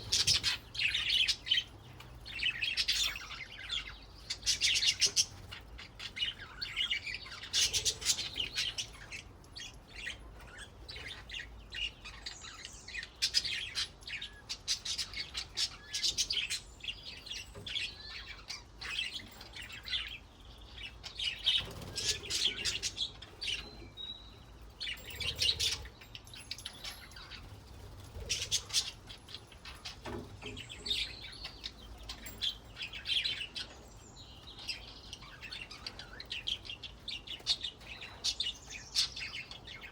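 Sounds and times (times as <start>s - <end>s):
budgerigars chattering: 0.0s - 1.7s.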